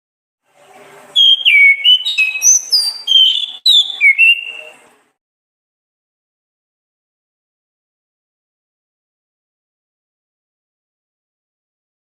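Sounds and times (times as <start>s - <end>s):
thrush singing whistled notes: 1.2s - 4.9s.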